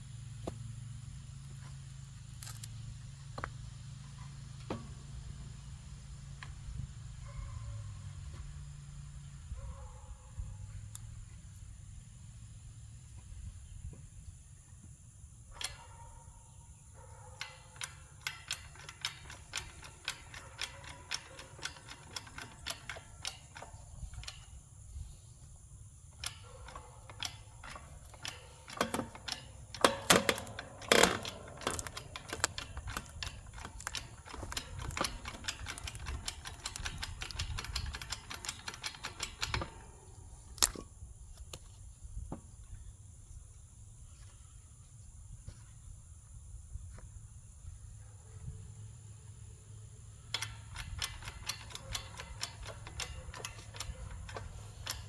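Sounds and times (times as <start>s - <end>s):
hydraulic jack pump clicking: 17.4s - 24.7s, 26.0s - 41.5s, 50.2s - 55.0s.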